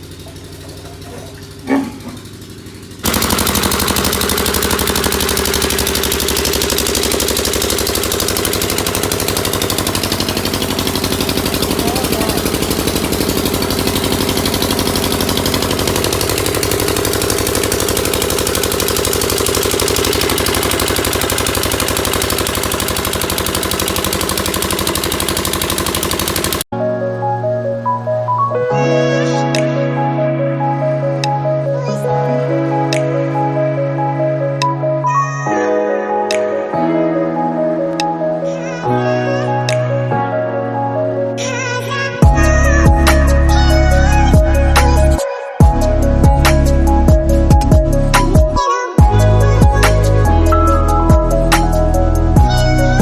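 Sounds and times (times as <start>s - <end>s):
engine running: 0.0s - 26.7s, 42.2s - 53.0s.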